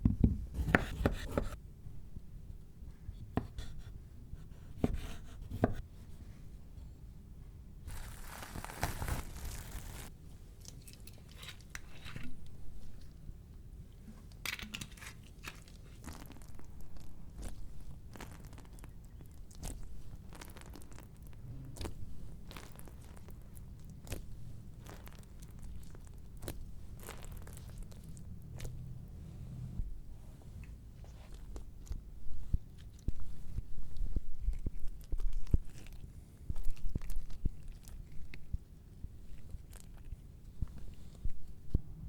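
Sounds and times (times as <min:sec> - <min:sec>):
small kitchen clicks and crackles: 0:10.6 - 0:13.1.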